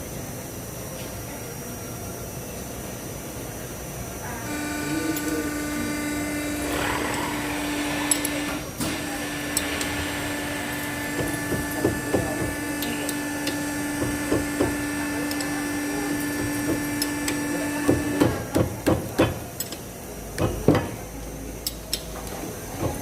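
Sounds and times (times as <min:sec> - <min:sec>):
machine humming: 0:04.3 - 0:18.5.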